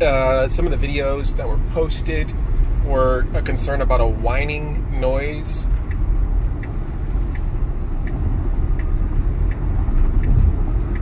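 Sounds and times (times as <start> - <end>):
road and tyre rumble: 0.0 - 11.0
faint light ticks: 5.1 - 11.0.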